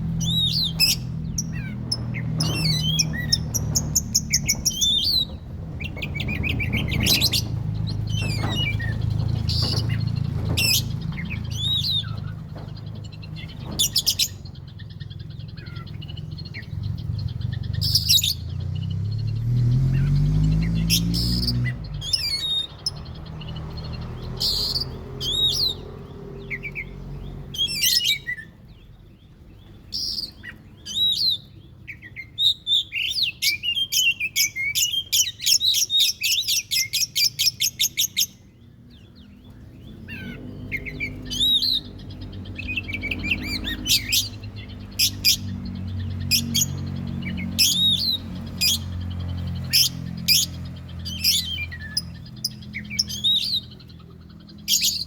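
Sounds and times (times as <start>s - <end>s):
bird singing whistled notes: 0.2s - 10.0s, 40.1s - 55.0s
fast chattering bird chirps: 0.2s - 18.6s, 39.6s - 55.0s.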